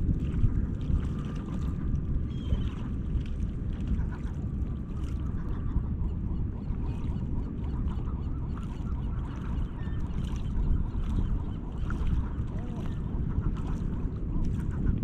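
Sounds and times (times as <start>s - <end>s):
low rumble: 0.0s - 15.0s
gulls calling: 2.2s - 3.0s, 4.0s - 15.0s.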